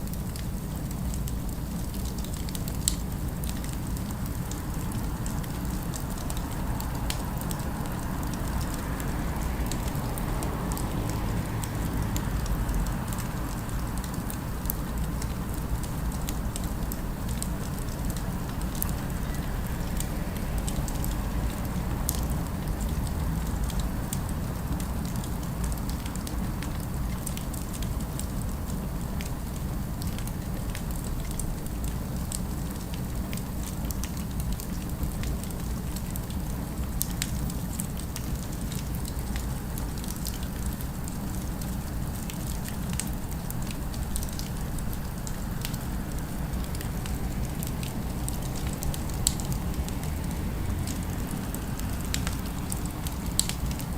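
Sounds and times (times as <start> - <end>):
fire crackling and popping: 0.0 - 53.9.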